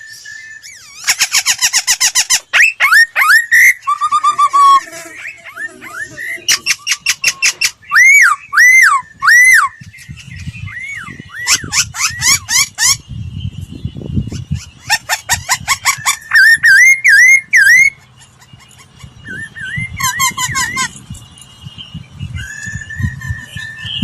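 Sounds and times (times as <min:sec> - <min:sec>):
bird singing whistled phrases: 0:02.5 - 0:18.0, 0:21.6 - 0:24.0.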